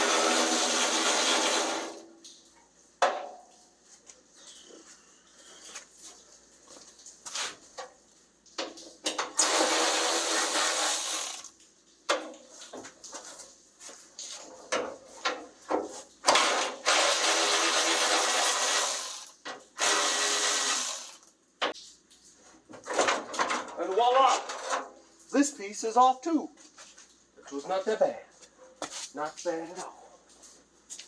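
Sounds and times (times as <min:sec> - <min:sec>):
power tool spinning bolts: 0:00.0 - 0:02.0, 0:09.4 - 0:11.5, 0:16.3 - 0:21.3.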